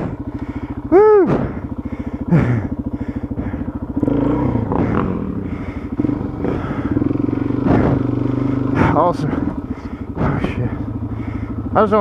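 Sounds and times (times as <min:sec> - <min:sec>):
motorcycle engine at low revs: 0:00.0 - 0:12.0
sharp knocks: 0:07.6 - 0:08.2.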